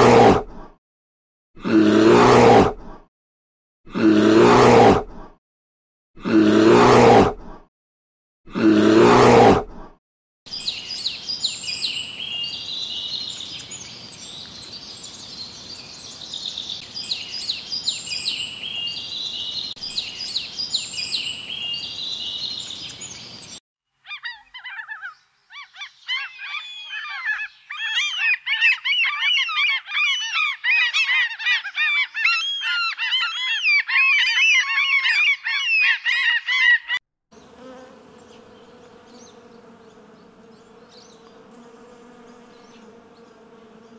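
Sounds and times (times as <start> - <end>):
bird chirps: 10.5 - 37.5, 38.1 - 41.5
honeybee buzzing: 37.4 - 43.9.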